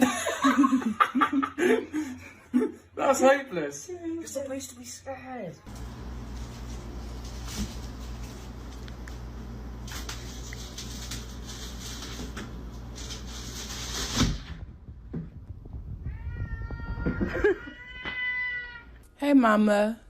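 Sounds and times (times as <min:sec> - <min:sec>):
cat meowing: 0:16.0 - 0:19.0.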